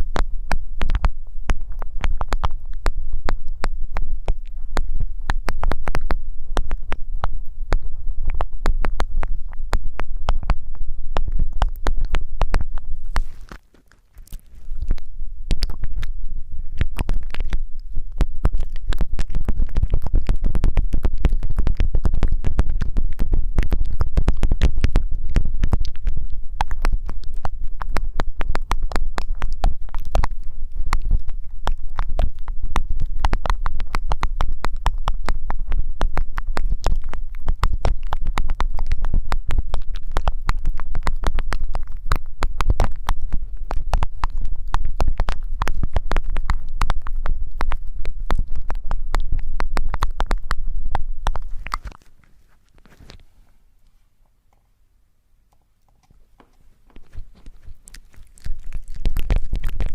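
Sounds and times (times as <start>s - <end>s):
crackling and rubbing on microphone: 0.0s - 54.2s, 55.8s - 59.9s
deep rumble: 14.5s - 51.9s.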